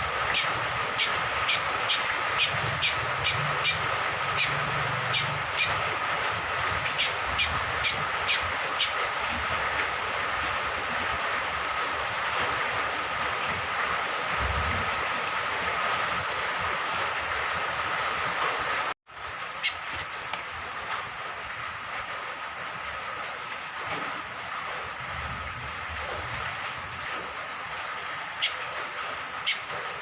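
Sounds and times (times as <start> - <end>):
steady rain falling: 0.0 - 30.0
small bird calling: 0.3 - 5.8, 6.9 - 9.0.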